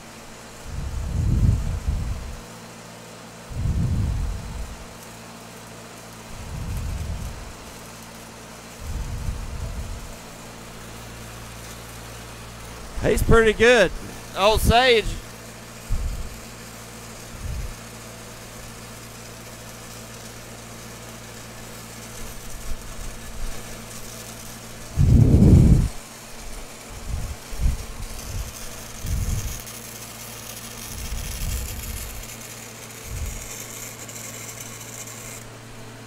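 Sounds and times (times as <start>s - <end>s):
welding machine engine idling: 0.0s - 36.0s
faint high hiss: 13.0s - 15.3s.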